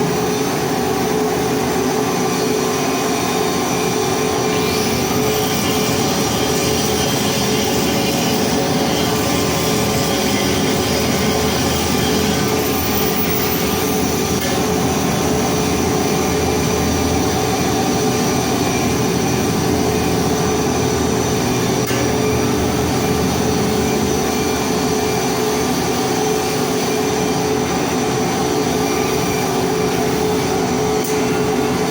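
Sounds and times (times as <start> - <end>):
welding equipment humming: 0.0 - 31.9.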